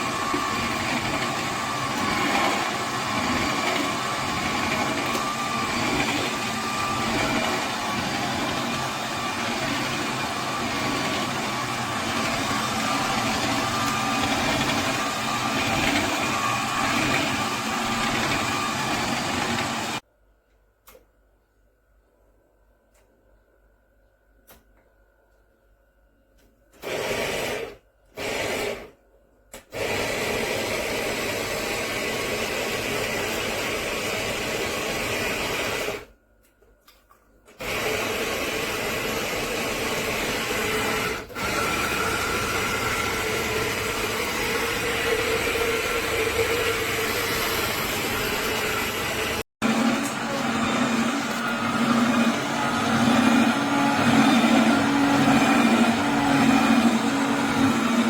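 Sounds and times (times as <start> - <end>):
electric juicer whirring: 0.0 - 20.0, 26.8 - 29.0, 29.6 - 36.1, 37.5 - 58.0.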